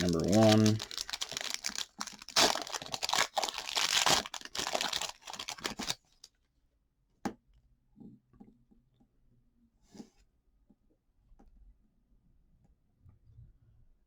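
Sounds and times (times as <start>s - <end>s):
cards being handled: 0.0s - 6.0s
wrapper tearing and crinkling: 0.0s - 6.0s.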